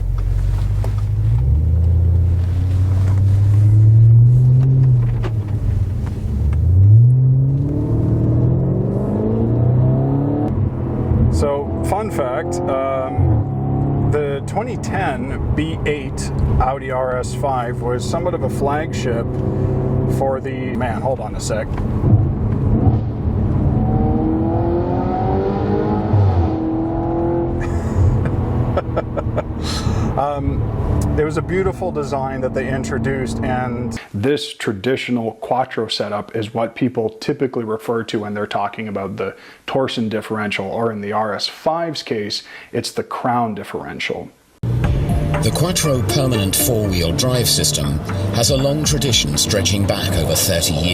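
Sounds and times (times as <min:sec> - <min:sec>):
car engine accelerating: 0:00.0 - 0:34.0, 0:44.6 - 0:50.9.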